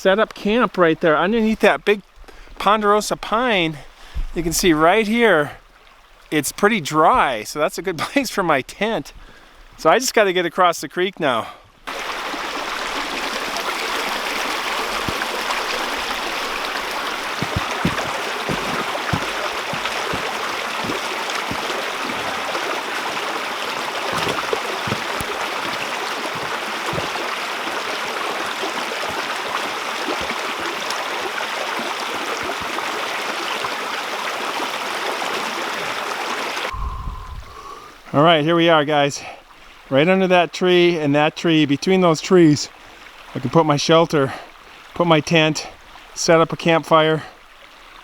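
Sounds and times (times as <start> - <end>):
creek water running: 0.0 - 36.8, 37.5 - 48.0
soft low thumps: 14.9 - 22.5, 36.7 - 38.0.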